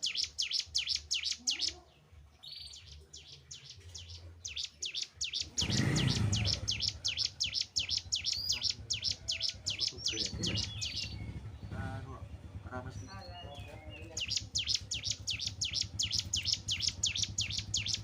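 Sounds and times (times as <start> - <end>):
bird chirping sharply: 0.0 - 1.8, 2.5 - 18.0
low rumble: 9.7 - 18.0.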